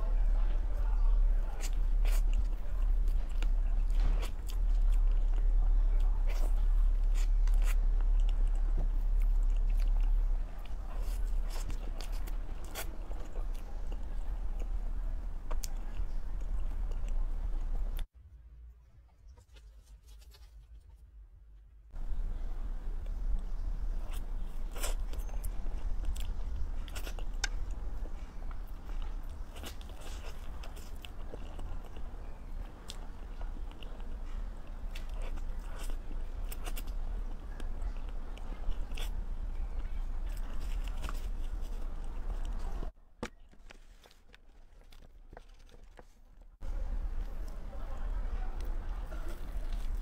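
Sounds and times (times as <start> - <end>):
steady low hum: 0.0 - 50.0
person chewing with lip smacks: 23.0 - 43.4.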